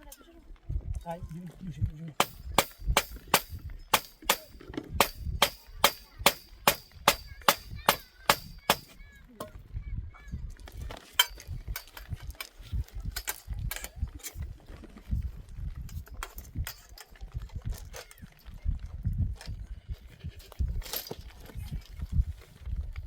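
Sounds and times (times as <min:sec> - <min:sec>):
hammer striking tent stake: 0:02.2 - 0:09.0.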